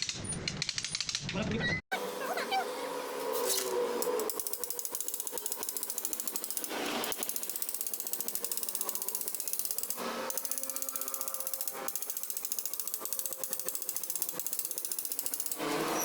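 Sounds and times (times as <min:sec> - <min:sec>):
rapid mechanical clicking: 0:04.0 - 0:15.7.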